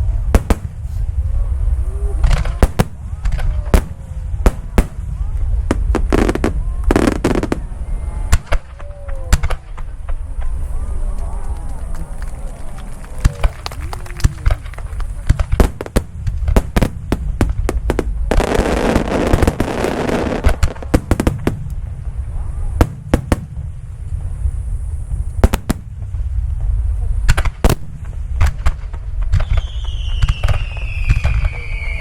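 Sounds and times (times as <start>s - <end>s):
fireworks bangs: 0.0s - 32.0s
fireworks crackling: 0.0s - 32.0s
low rumble: 0.0s - 32.0s
high falling whistle: 29.4s - 32.0s.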